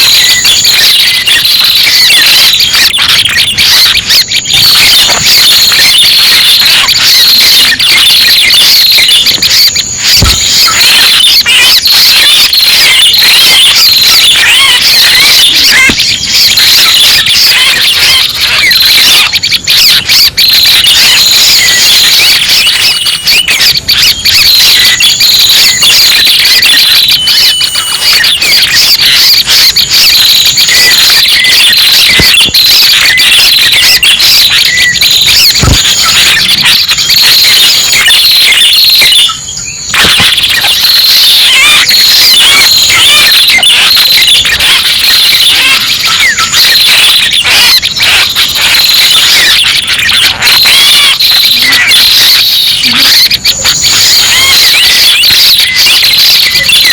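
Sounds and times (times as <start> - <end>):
high bird chirping and twittering: 2.3 - 29.2.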